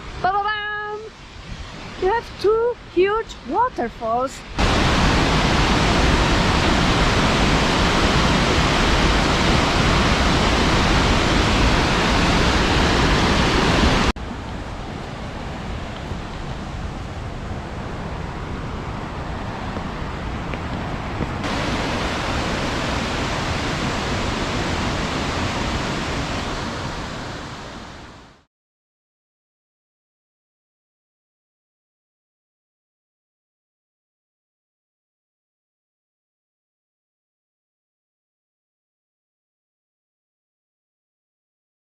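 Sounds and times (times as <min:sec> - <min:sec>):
waterfall rushing: 0:03.4 - 0:28.4.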